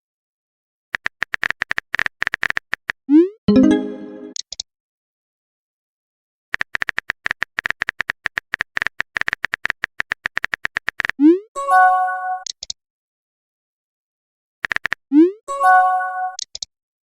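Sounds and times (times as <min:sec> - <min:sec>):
phone keyboard typing clicks: 0:01.0 - 0:03.0, 0:06.6 - 0:11.2, 0:14.6 - 0:15.0.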